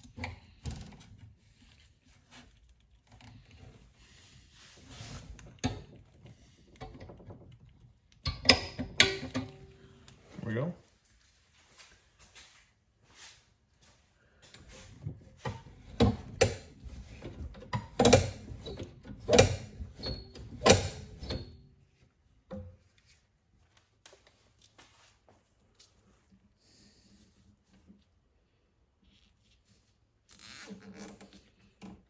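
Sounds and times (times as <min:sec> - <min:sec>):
hand tools clicking and knocking: 0:05.6 - 0:09.7, 0:15.4 - 0:21.5.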